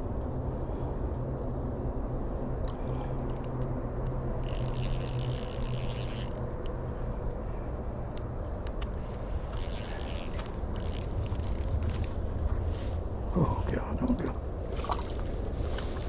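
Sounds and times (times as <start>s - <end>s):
low outdoor rumble: 0.0s - 16.0s
fishing reel being cranked: 4.4s - 6.4s, 8.8s - 12.2s
faint clicks: 8.1s - 12.2s.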